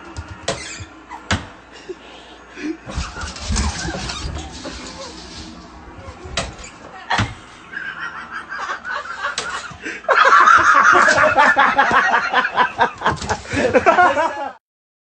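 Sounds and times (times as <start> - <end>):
person laughing: 7.0 - 14.6.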